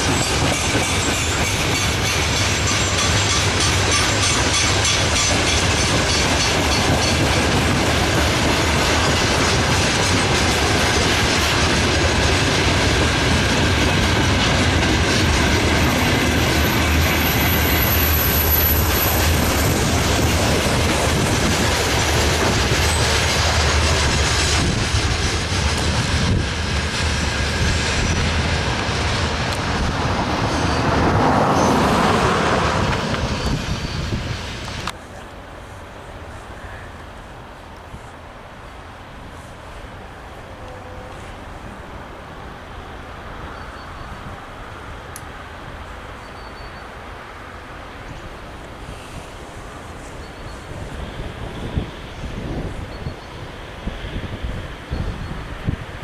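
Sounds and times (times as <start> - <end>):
high wheel squeal: 16.6 - 20.6, 30.3 - 34.9, 46.2 - 47.0, 48.8 - 55.8.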